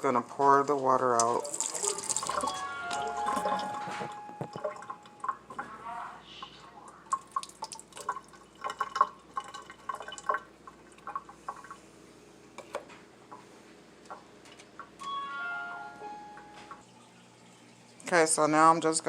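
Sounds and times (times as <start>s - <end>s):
water dripping and splashing: 0.1s - 5.8s, 6.4s - 11.9s
water pouring off a bowl: 0.5s - 5.7s, 6.9s - 11.8s.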